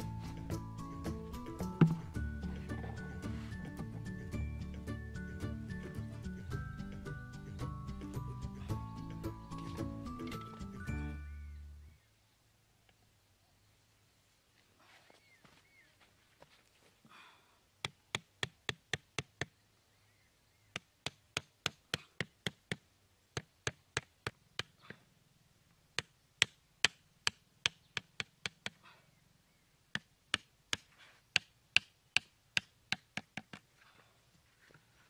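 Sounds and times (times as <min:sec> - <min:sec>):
machete knocking wooden stake: 0:01.8 - 0:02.1.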